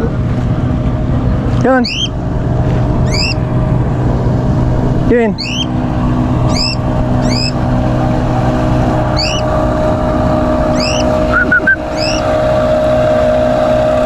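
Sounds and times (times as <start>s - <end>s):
motor-like hum: 0.0s - 14.0s
cockatiel chirps: 1.8s - 2.1s, 3.0s - 3.4s, 5.4s - 5.7s, 6.5s - 7.6s, 9.2s - 9.4s, 10.8s - 12.2s
whistled notes: 1.8s - 2.1s, 3.1s - 3.4s, 5.4s - 5.7s, 10.7s - 12.3s.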